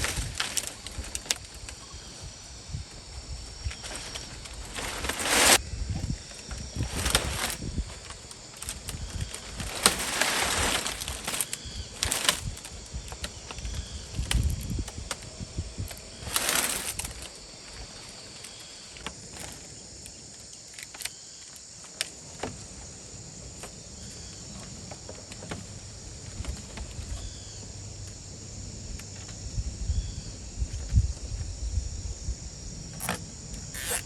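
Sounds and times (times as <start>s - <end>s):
high insect drone: 0.0s - 34.0s
rustling rush: 3.4s - 5.8s, 6.6s - 13.0s, 14.2s - 18.5s.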